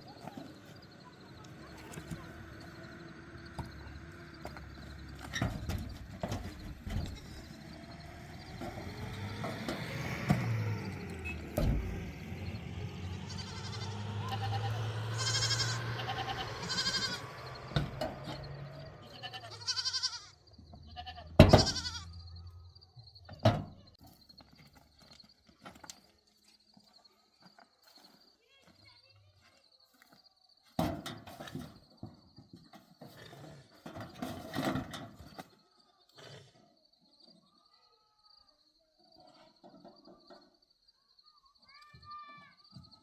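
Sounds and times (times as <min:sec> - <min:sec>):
farm animal bleating: 0:06.8 - 0:08.2, 0:13.0 - 0:22.6.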